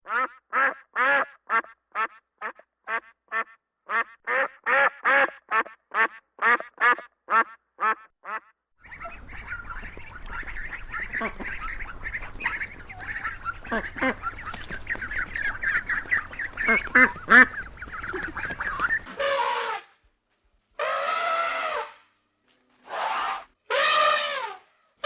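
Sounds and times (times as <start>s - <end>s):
duck quacking: 0.1s - 19.6s
faint chirping calls: 8.8s - 19.1s
steady background hiss and hum: 8.9s - 19.1s.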